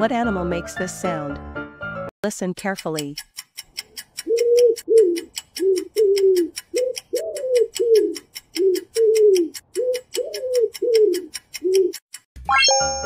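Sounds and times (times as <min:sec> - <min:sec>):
fast even ticking: 0:02.2 - 0:12.3
pigeon cooing: 0:04.2 - 0:12.0.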